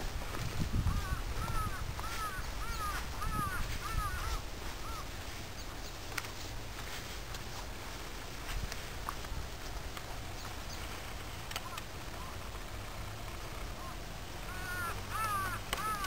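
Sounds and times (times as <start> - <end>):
bird calling: 0.8 - 6.5, 10.3 - 12.6, 13.7 - 16.0.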